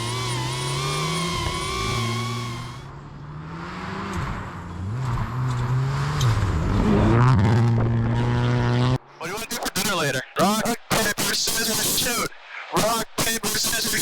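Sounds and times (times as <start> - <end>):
steady droning tone: 0.0 - 2.9
rally car engine revving: 0.0 - 9.0.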